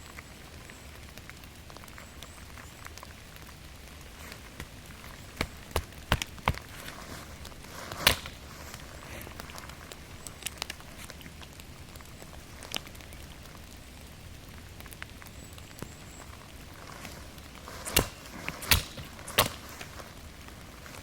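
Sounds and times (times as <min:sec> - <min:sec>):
steady rain in forest: 0:00.0 - 0:21.0
sharp taps and drips: 0:01.0 - 0:13.8.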